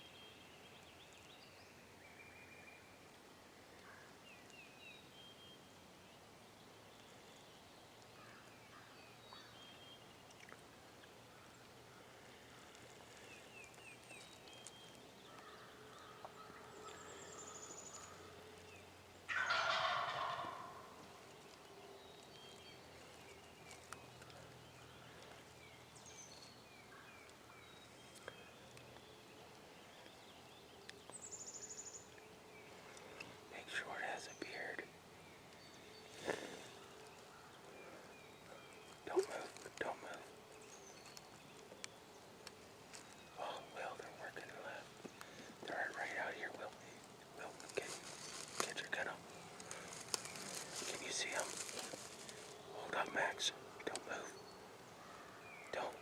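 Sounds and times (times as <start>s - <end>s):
faint songbird chirps: 0.0s - 56.0s
turkey gobbling: 19.3s - 20.9s.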